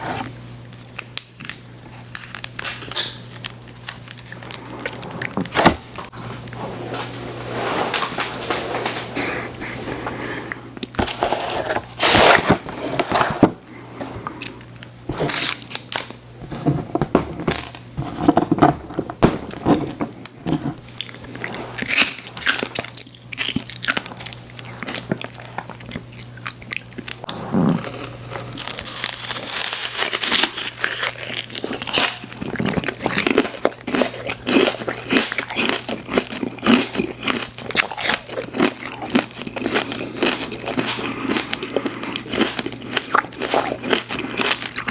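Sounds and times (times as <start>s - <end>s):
crunchy biting of sweets: 0.7s - 5.6s, 20.9s - 44.9s
wet chewing: 20.9s - 27.4s, 28.0s - 44.9s.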